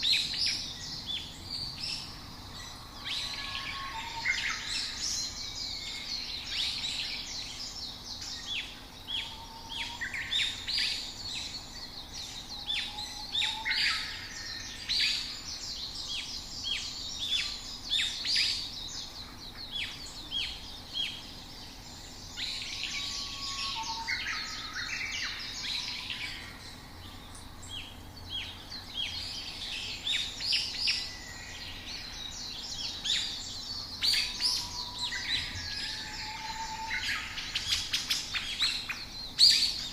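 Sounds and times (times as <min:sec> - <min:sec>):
songbirds chirping: 0:00.0 - 0:39.9
lower whistled bird notes: 0:21.8 - 0:39.9.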